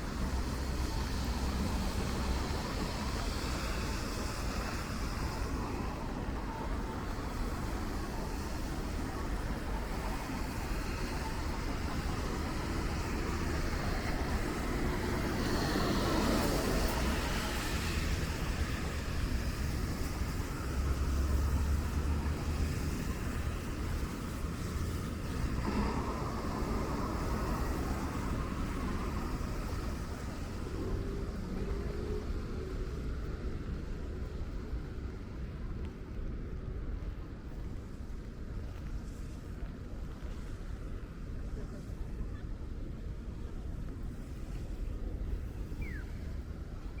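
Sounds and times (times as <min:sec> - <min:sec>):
rain hiss: 0:00.0 - 0:41.9
road traffic noise: 0:00.0 - 0:47.0.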